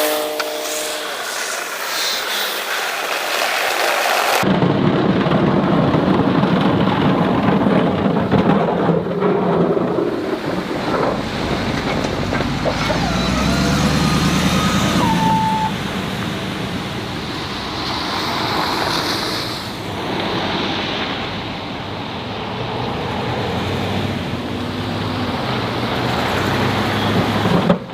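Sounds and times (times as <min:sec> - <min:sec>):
vehicle engine and road noise: 0:01.1 - 0:27.9
faint thin squeal: 0:12.8 - 0:15.8.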